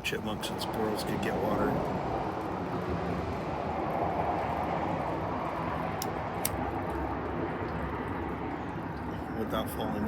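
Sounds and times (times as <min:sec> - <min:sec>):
low rumbling background noise: 0:00.0 - 0:10.0.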